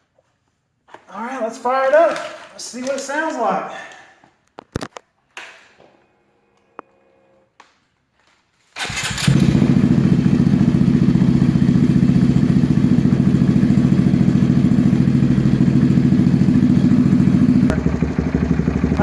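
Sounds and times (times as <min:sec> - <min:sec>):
motorcycle engine starting and idling: 0:08.8 - 0:19.0.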